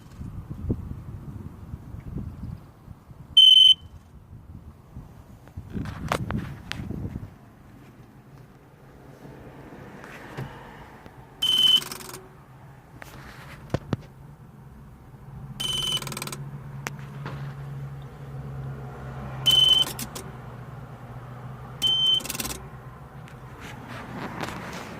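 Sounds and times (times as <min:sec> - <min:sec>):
short high electronic beeps: 0:03.4 - 0:04.0, 0:11.4 - 0:12.0, 0:15.6 - 0:16.2, 0:19.5 - 0:20.0, 0:21.8 - 0:22.4
sharp clicks: 0:11.5 - 0:12.2, 0:15.6 - 0:16.4, 0:19.6 - 0:20.3, 0:21.8 - 0:22.6.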